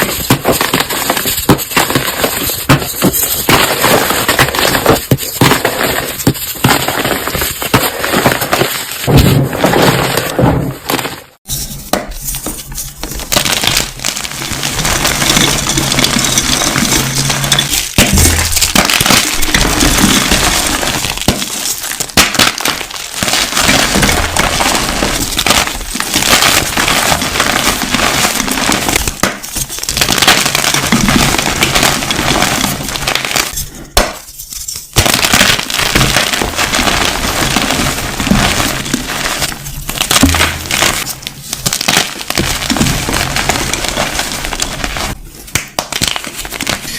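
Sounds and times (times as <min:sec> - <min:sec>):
crushing brittle glassy material: 0:12.6 - 0:46.9.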